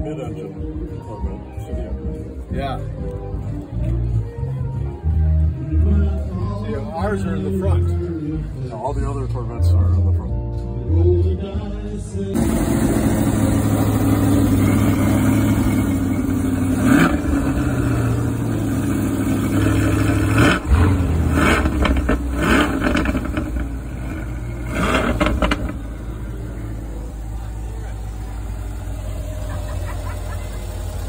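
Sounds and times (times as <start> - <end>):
car engine revving: 12.4 - 31.0.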